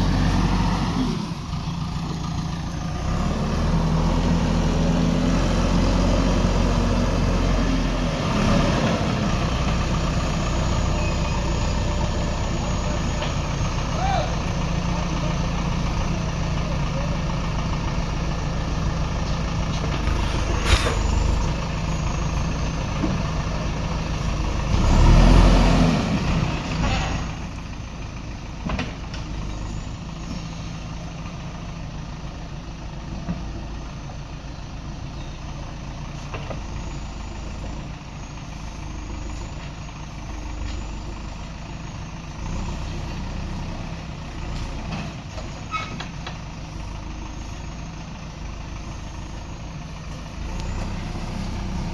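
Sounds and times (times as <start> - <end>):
backhoe diesel engine running: 0.0 - 51.9.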